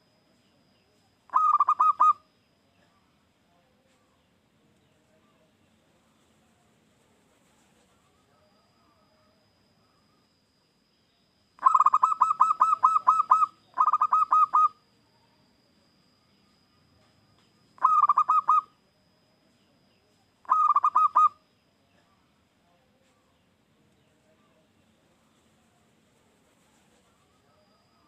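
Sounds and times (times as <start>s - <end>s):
dove cooing: 1.3s - 2.2s, 11.6s - 14.8s, 17.8s - 18.8s, 20.4s - 21.4s.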